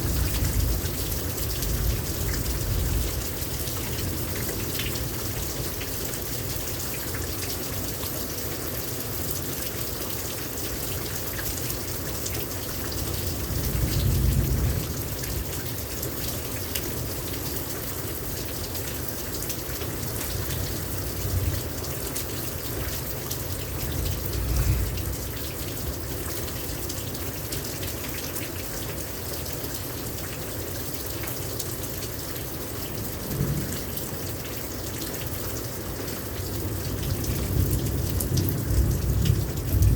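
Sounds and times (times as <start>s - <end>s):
low thunder rumbles: 0.0s - 5.0s, 13.3s - 15.6s, 23.6s - 26.1s, 33.0s - 34.4s, 36.7s - 39.9s
heavy rain pouring: 0.0s - 39.9s.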